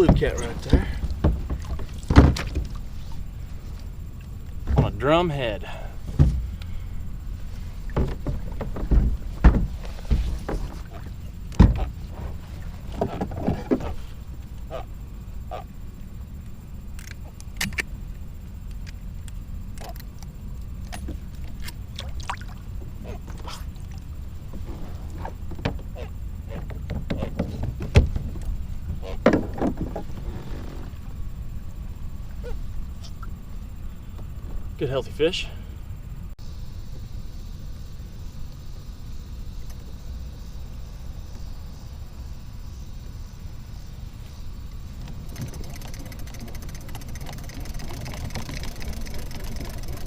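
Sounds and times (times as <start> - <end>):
knocks against kayak hull: 0.0 - 2.8, 7.9 - 10.8
steady low rumble: 0.0 - 50.0.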